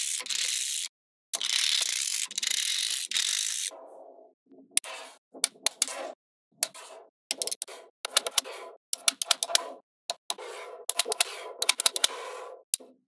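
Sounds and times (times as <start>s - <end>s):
magnetic balls clicking together: 0.0s - 3.7s, 6.6s - 8.4s, 9.0s - 12.1s.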